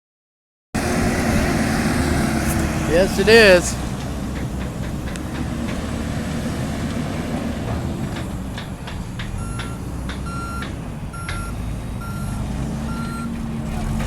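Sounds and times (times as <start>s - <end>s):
diesel engine under load: 0.8s - 14.0s
sharp knocks: 2.5s - 6.3s, 7.6s - 11.6s
reversing alarm beeping: 9.4s - 13.9s.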